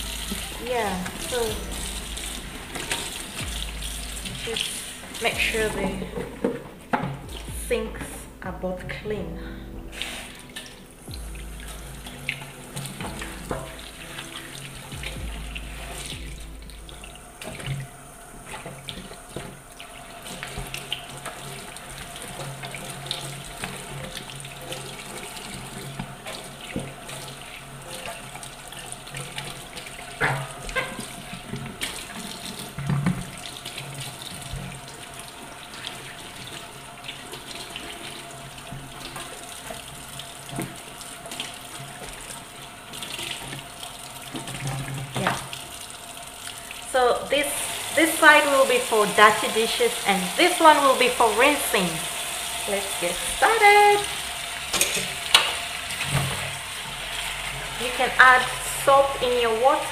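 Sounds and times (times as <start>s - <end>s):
tap running into metal sink: 4.2s - 8.2s, 54.7s - 56.6s.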